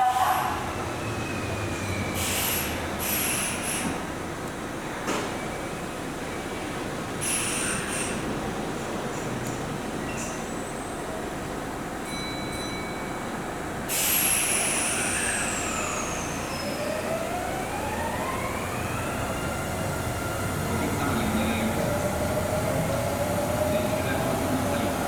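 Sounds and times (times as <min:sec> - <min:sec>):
electric train motors whining: 0:15.7 - 0:25.0.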